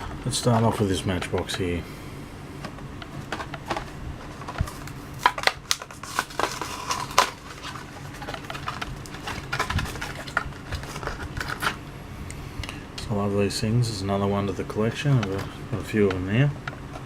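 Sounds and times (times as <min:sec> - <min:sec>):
plastic packaging being torn open: 0:04.6 - 0:11.8.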